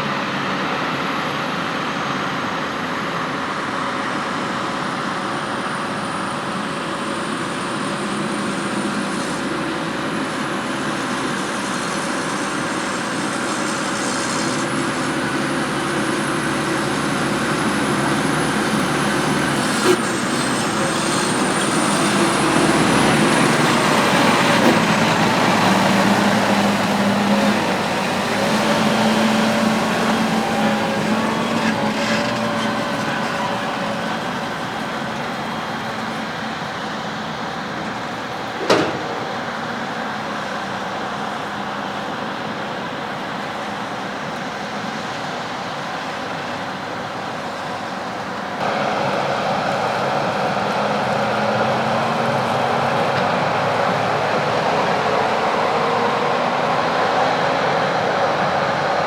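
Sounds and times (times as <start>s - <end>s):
heavy farm machinery running: 0.0s - 59.0s.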